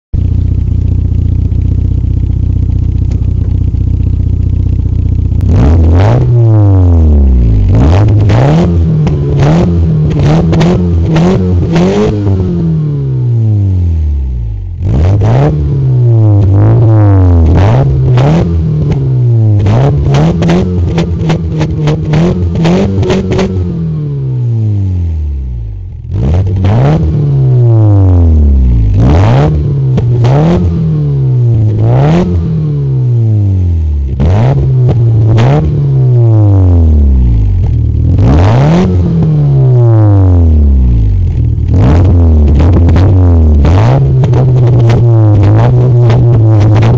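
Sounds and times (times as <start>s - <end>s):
exhaust cracks: 0.2s - 12.7s, 14.7s - 23.8s, 25.8s - 27.3s, 28.7s - 33.3s, 37.2s - 46.9s
car engine revving: 0.2s - 46.9s.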